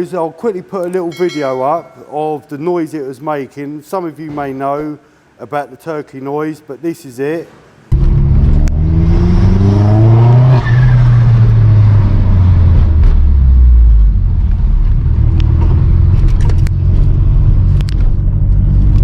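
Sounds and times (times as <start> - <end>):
car engine revving: 7.9 - 19.0.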